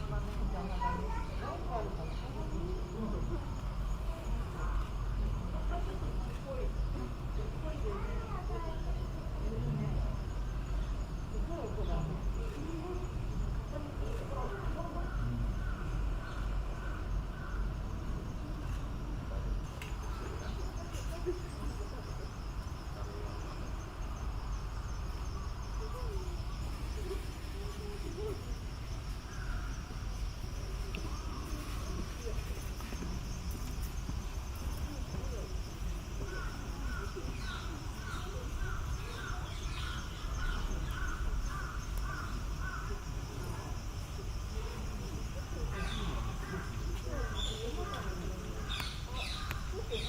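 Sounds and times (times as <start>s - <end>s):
insects chirping: 0.0s - 50.0s.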